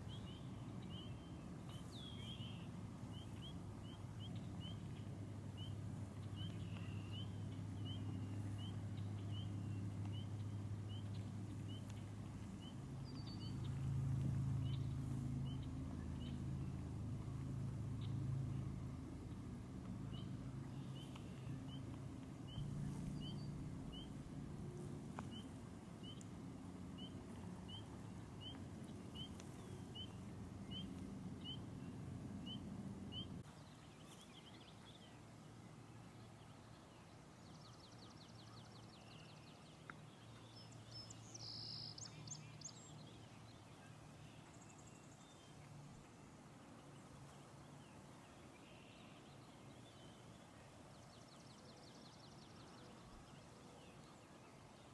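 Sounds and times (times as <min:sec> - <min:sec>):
bird chirping: 0:00.0 - 0:14.0, 0:20.1 - 0:26.3, 0:27.0 - 0:35.2, 0:36.8 - 0:45.6
low steady rumble: 0:00.0 - 0:53.4.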